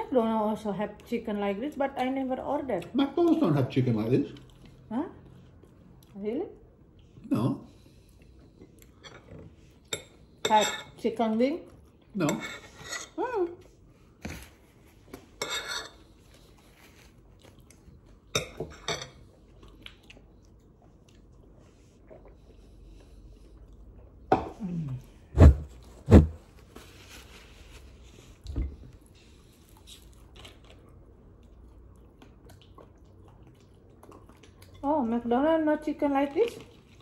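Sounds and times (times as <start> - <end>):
chewing crispy fried chicken: 16.1 - 18.4, 19.2 - 24.2, 29.1 - 35.1, 36.2 - 37.0.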